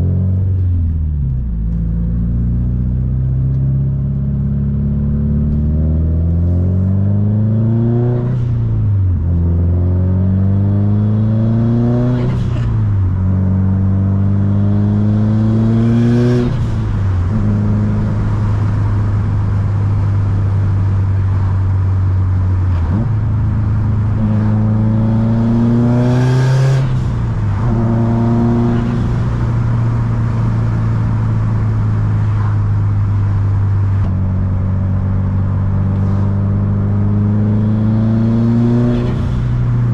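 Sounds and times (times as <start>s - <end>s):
car engine revving through gears: 9.3s - 39.9s.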